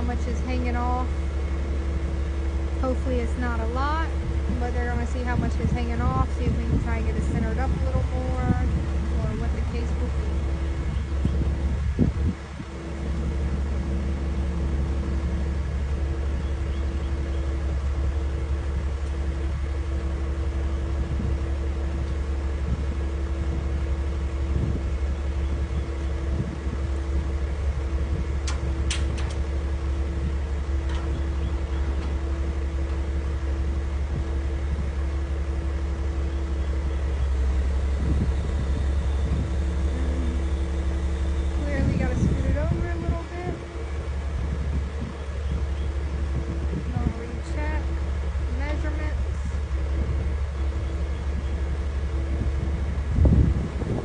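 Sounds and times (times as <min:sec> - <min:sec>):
heavy vehicle engine idling: 0:00.0 - 0:54.0.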